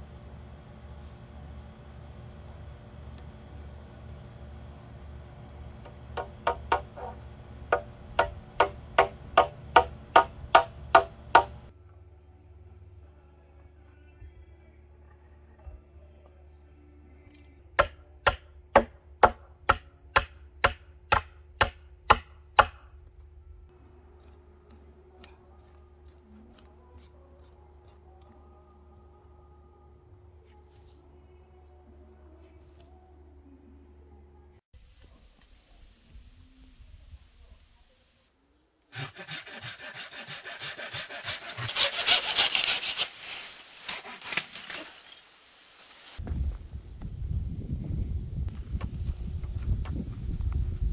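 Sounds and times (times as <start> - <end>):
hand saw cutting bamboo: 6.2 - 11.7, 17.8 - 22.8, 38.9 - 44.9.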